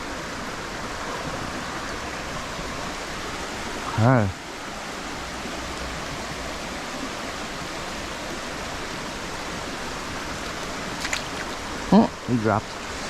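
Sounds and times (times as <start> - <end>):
stream water rushing over riffle: 0.0 - 13.0.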